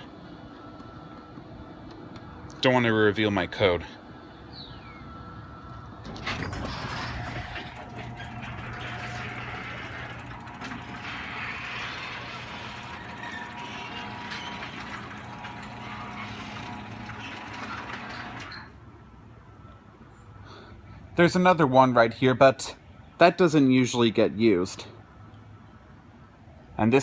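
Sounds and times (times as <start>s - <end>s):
garage door clunk: 6.0s - 18.8s
garage door opener running: 6.0s - 18.8s.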